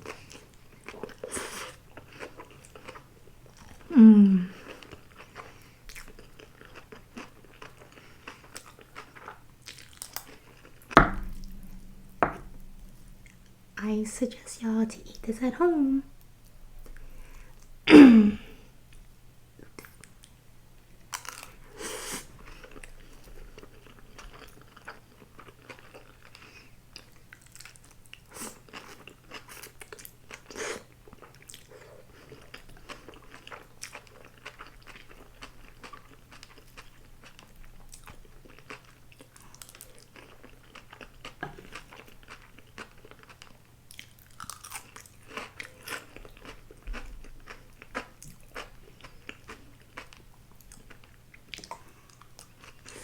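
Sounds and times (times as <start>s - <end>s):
close-miked chewing and biting: 4.6s - 11.6s, 22.6s - 53.0s.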